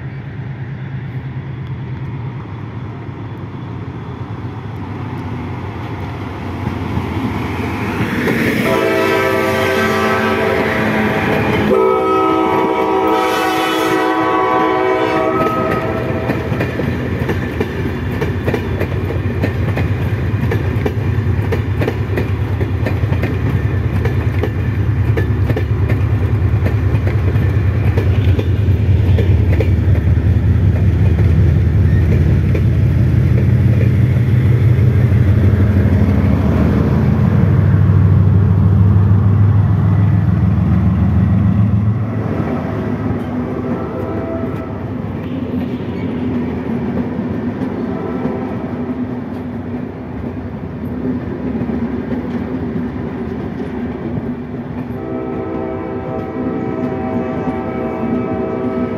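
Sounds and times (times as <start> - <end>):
diesel locomotive horn: 8.6 - 16.9, 40.9 - 45.5, 47.8 - 48.8, 54.8 - 58.9
wheels clicking over rail joints: 15.3 - 36.3.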